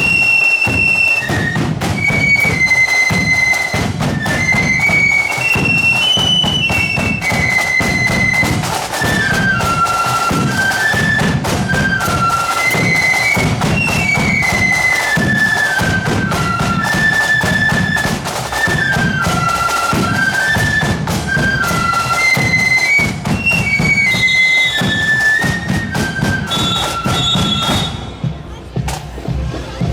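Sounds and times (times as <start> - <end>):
flutes playing high melody: 0.0 - 28.7
side drum beats: 0.0 - 29.9
bass drum beats: 27.2 - 29.9.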